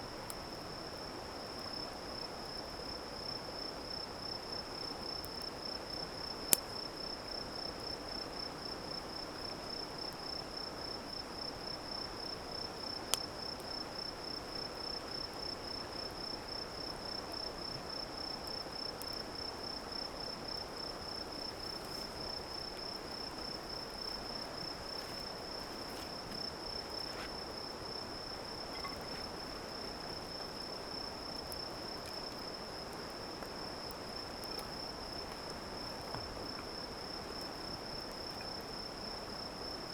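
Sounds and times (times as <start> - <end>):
faint hiss: 0.0 - 39.9
wood popping in campfire: 21.3 - 27.6, 28.5 - 30.3
insect trilling: 28.6 - 29.8.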